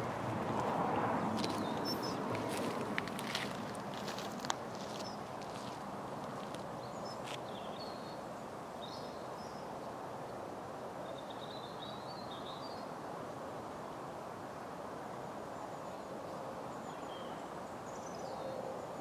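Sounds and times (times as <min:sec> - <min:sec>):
small birds chirping: 0:01.3 - 0:05.8.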